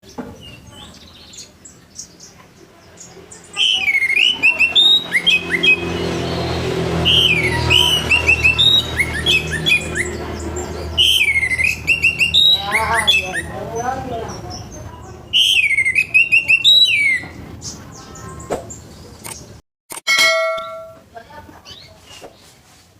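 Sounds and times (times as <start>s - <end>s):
thrush singing whistled song: 3.5s - 10.2s, 10.8s - 13.6s, 15.3s - 17.4s.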